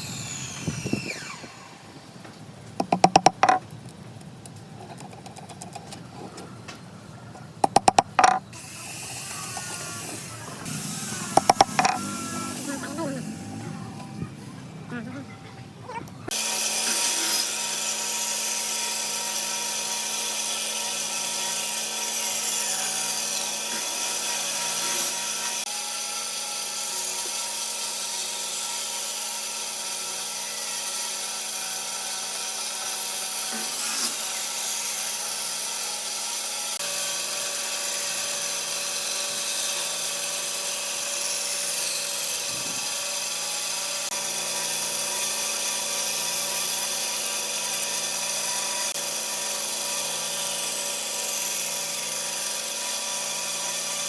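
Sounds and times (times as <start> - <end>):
electric power tool working wood: 0.0 - 2.1, 2.8 - 3.6, 7.6 - 14.2, 16.3 - 54.0.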